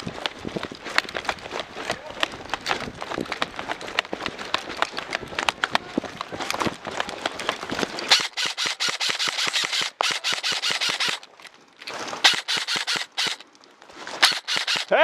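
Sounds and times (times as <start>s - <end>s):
airsoft rifle firing full auto: 8.1s - 11.2s, 12.2s - 13.4s, 14.2s - 15.0s.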